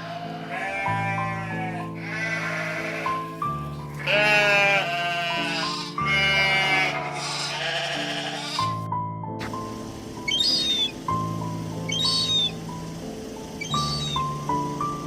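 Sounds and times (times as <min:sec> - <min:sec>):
animal calling: 0:00.0 - 0:08.8, 0:10.2 - 0:11.1, 0:11.8 - 0:12.8, 0:13.5 - 0:14.6
music with held chords: 0:08.6 - 0:15.0.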